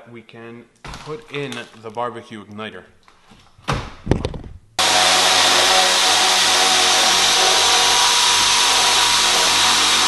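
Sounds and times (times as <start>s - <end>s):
power drill whining: 4.8s - 10.0s.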